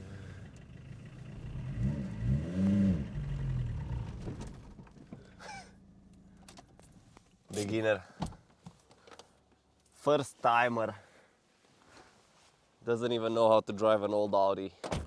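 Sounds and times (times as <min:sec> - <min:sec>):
car engine revving and stalling: 0:00.0 - 0:04.9.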